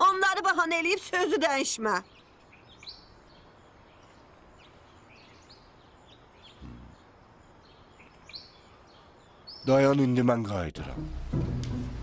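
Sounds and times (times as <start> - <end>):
steady low hiss: 0.0 - 12.0
faint small bird chirps: 2.0 - 9.8.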